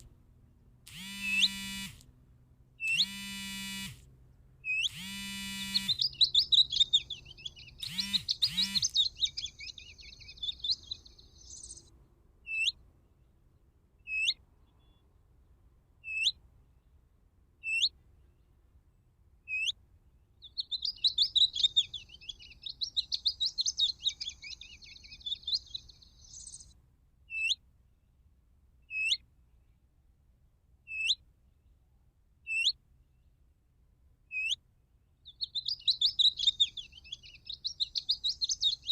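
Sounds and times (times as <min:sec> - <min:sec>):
recorded twittering birdsong: 0:00.9 - 0:02.0, 0:02.8 - 0:13.4, 0:14.0 - 0:15.2, 0:16.0 - 0:17.0, 0:17.6 - 0:18.6, 0:19.4 - 0:27.6, 0:28.8 - 0:29.8, 0:30.8 - 0:31.8, 0:32.4 - 0:33.4, 0:34.3 - 0:38.9
sharp downward bird call notes: 0:00.9 - 0:02.0, 0:02.8 - 0:04.0, 0:04.7 - 0:11.5.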